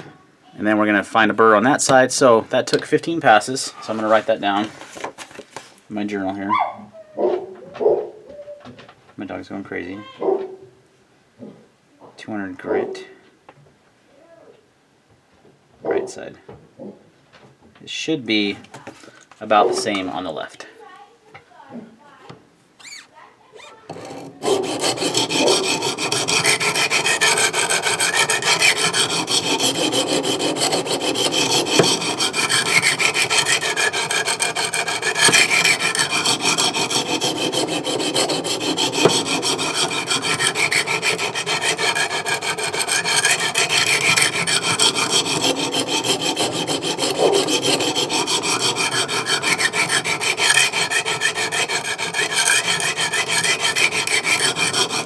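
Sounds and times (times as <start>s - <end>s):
sharpening stone scraping knife blade: 23.6s - 55.0s.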